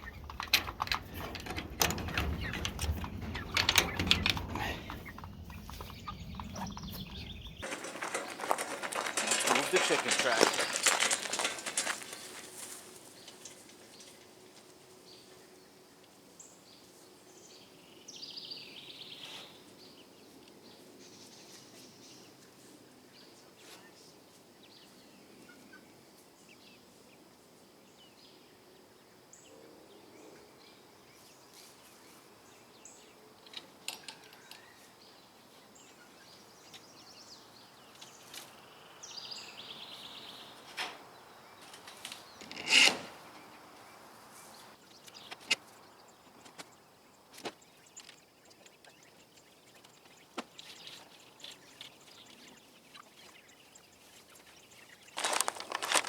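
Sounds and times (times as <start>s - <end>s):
light clicks and knocks: 0.0s - 12.2s
scratchy rattles: 0.0s - 13.7s, 41.6s - 43.2s.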